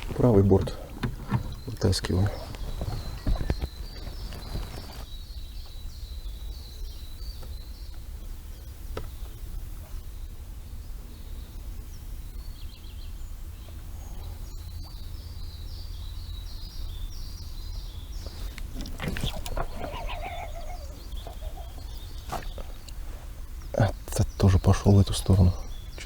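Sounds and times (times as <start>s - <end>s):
knocks and rustles: 0.0s - 5.1s
low outdoor rumble: 0.0s - 5.1s, 5.8s - 26.0s
songbird chirping: 0.0s - 26.0s.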